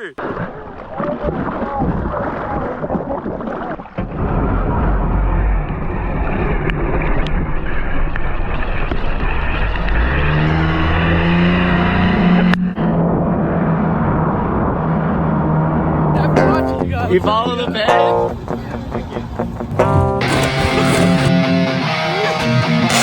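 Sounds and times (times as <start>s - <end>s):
engine running: 19.4s - 23.0s
loud rushing noise: 19.7s - 21.5s.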